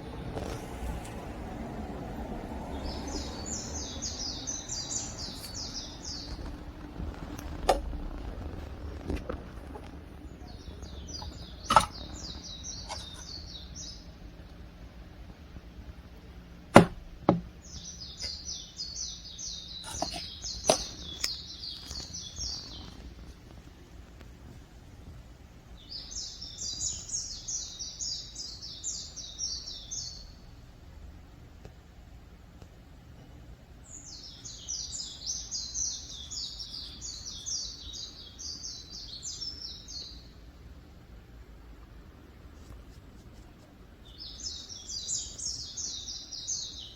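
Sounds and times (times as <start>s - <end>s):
songbird singing: 0.0s - 30.9s, 32.7s - 46.9s
low steady background hum: 0.0s - 46.9s
sharp knocks: 11.2s - 12.1s, 16.7s - 17.5s, 19.8s - 21.0s.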